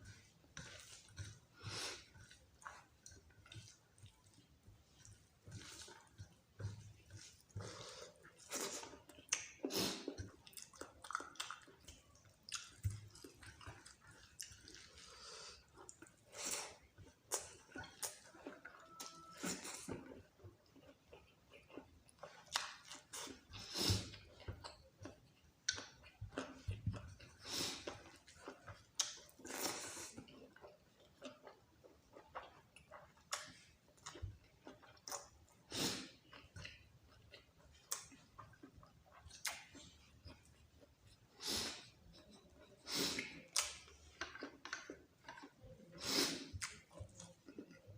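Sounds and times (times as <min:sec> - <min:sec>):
mouth chewing wet food: 0:00.0 - 0:47.9.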